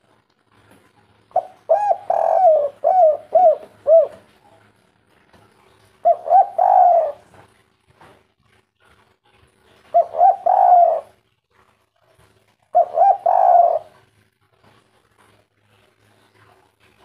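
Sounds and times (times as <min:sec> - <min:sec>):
dove cooing: 0:01.3 - 0:04.8, 0:06.0 - 0:07.5, 0:09.8 - 0:11.2, 0:12.6 - 0:14.2.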